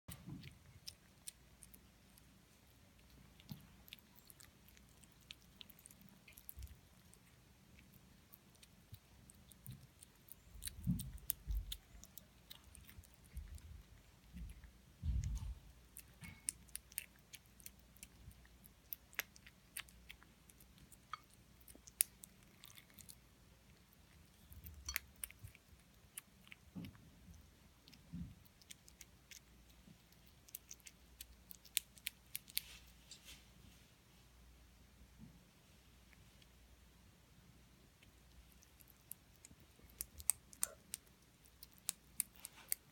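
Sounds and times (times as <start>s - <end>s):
cats chewing with sharp clicks: 0.1s - 33.0s, 37.9s - 42.9s
soft low thumps: 14.4s - 15.7s.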